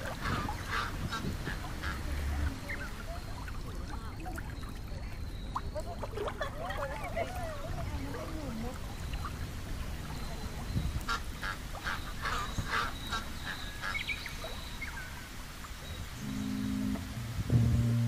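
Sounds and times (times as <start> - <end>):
waterfowl calling: 0.0 - 3.8, 8.1 - 15.3
low outdoor background: 0.0 - 18.0.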